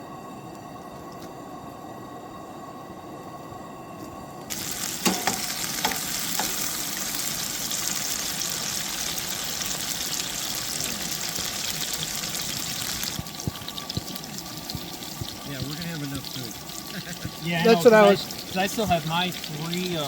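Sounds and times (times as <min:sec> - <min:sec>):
food sizzling in a pan: 0:04.5 - 0:20.0
utensil knocking: 0:05.0 - 0:06.6.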